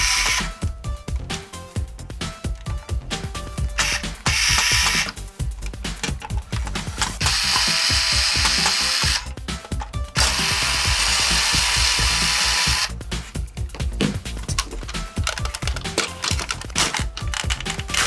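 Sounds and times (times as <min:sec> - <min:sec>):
small power tool running: 0:00.0 - 0:00.6, 0:03.8 - 0:05.2, 0:07.2 - 0:09.4, 0:10.2 - 0:13.0
ratchet-like clicking: 0:00.0 - 0:00.7, 0:03.6 - 0:18.0
background music: 0:00.0 - 0:18.0.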